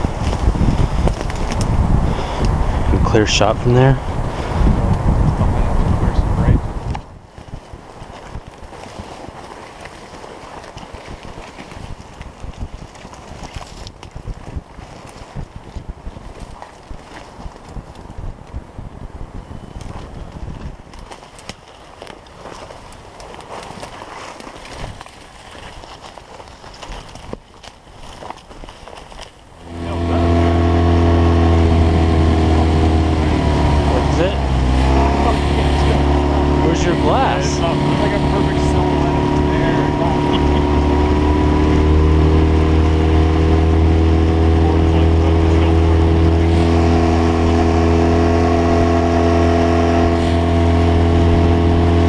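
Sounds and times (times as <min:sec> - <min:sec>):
outboard motor running: 0:00.0 - 0:14.2, 0:29.4 - 0:52.0.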